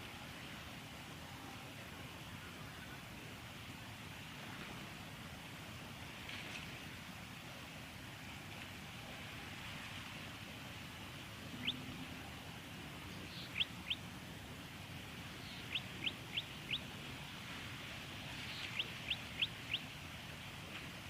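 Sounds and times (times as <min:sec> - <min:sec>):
background hiss: 0:00.0 - 0:21.0
bird sharp upward call notes: 0:15.4 - 0:16.8.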